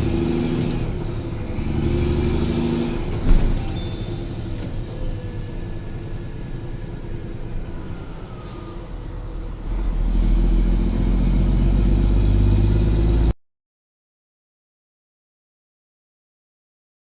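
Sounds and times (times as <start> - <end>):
vehicle engine and road rumble: 0.0 - 13.4.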